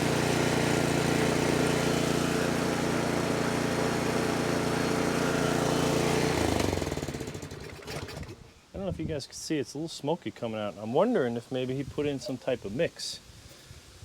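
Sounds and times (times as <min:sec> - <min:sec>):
small engine running: 0:00.0 - 0:08.4.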